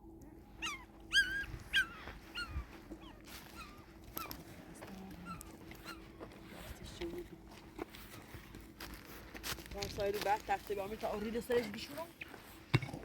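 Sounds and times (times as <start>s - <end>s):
dog whimpering and yelping: 0.6s - 4.4s.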